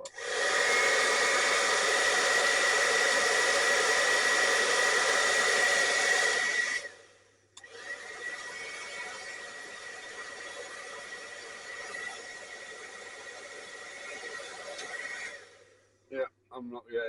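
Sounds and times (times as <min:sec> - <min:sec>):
hairdryer running: 0:00.0 - 0:15.8.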